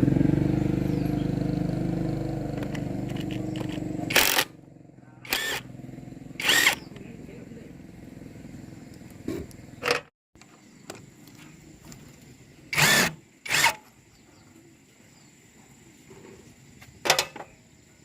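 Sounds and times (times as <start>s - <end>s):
low mechanical hum: 0.8s - 18.0s.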